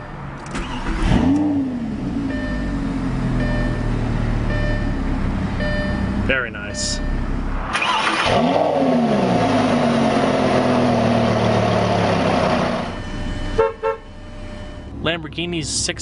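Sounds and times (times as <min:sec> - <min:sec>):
sports car engine revving: 0:00.5 - 0:06.3, 0:07.1 - 0:13.0
short beep: 0:02.3 - 0:02.8, 0:03.4 - 0:05.0, 0:05.6 - 0:07.4, 0:12.9 - 0:15.0.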